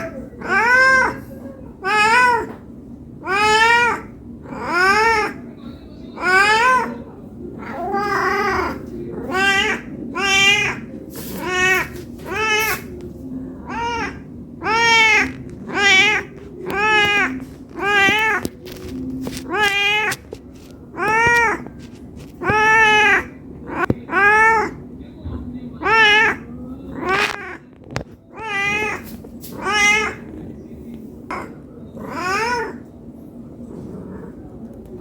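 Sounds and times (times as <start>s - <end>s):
cat meowing: 0.0s - 2.6s, 3.2s - 5.4s, 6.2s - 7.0s, 7.6s - 13.0s, 13.6s - 24.8s, 25.8s - 27.6s, 28.3s - 30.3s, 31.3s - 32.9s.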